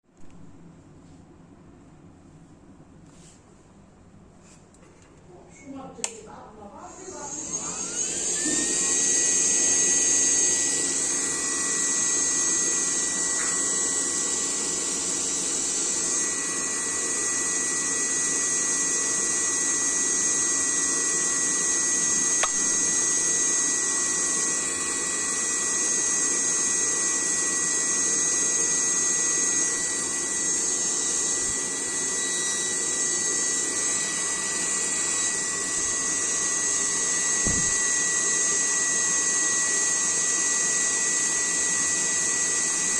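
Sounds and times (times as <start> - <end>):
electric fan motor whining: 6.0 - 42.9.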